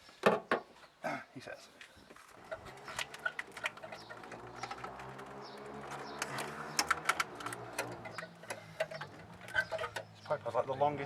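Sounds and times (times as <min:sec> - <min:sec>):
small clicks and taps: 0:02.9 - 0:10.1.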